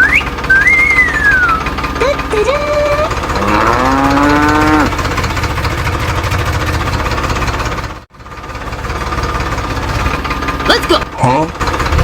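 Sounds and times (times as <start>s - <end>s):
short rising call: 0.0s - 1.8s
small motor rattling: 0.0s - 12.0s.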